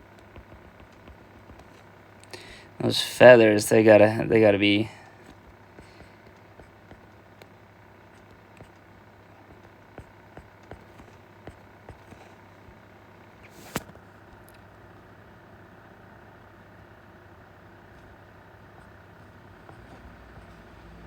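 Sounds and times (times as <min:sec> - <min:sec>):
low steady hum: 0:00.0 - 0:21.0
pencil taps and clicks from drawing: 0:00.2 - 0:01.9.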